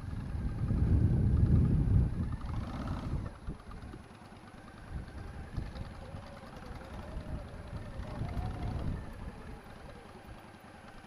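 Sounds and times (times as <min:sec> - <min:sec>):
low rumble: 0:00.0 - 0:03.9
motorcycle engine at low speed: 0:00.0 - 0:11.0.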